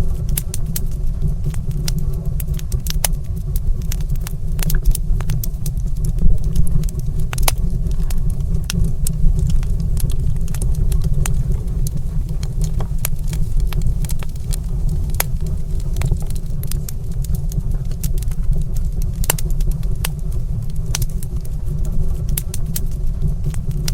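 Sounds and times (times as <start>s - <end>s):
low rumble: 0.0s - 23.9s
wood fire crackling: 0.0s - 23.9s.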